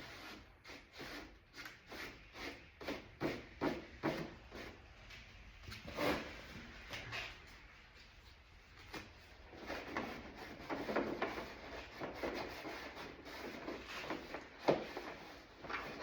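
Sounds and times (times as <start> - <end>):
scraping on plastic panel: 9.4 - 16.0.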